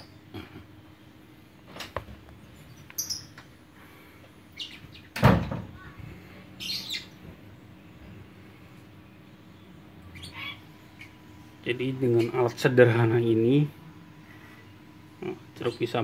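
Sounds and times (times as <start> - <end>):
high bird chirps: 2.7 - 3.4, 4.5 - 5.2, 6.6 - 7.2, 9.0 - 12.4.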